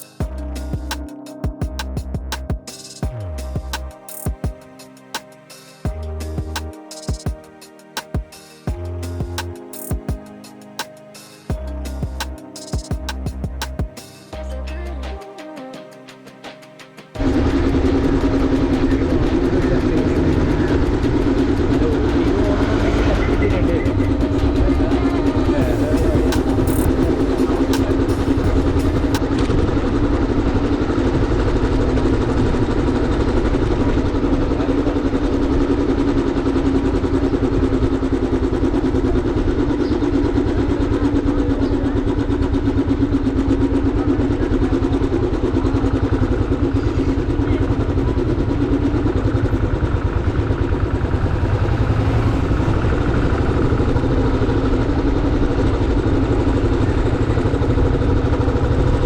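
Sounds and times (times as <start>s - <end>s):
motorcycle engine running: 17.2s - 59.0s.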